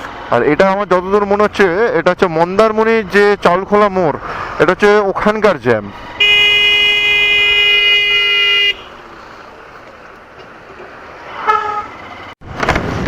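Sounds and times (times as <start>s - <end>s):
traffic noise: 0.0s - 13.0s
short horn toot: 6.2s - 9.0s
vehicle horn blast: 6.2s - 9.0s, 11.4s - 12.0s.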